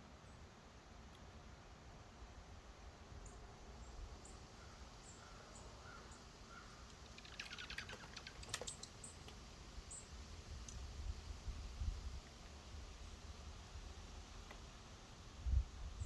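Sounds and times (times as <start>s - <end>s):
songbird chip notes: 5.0s - 9.3s.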